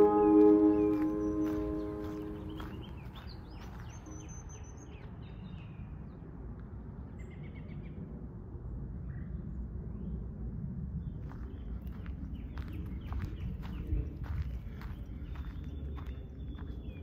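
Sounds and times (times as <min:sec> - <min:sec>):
small birds chirping: 0:00.0 - 0:05.7, 0:11.2 - 0:17.0.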